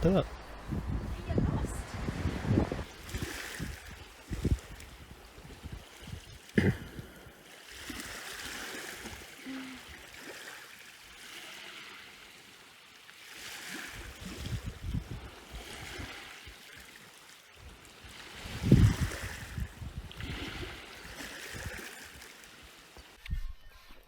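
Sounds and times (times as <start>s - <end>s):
wind rumbling on microphone: 0.0s - 8.0s, 13.9s - 16.6s, 17.6s - 21.9s
waves washing on shoreline: 0.0s - 23.2s.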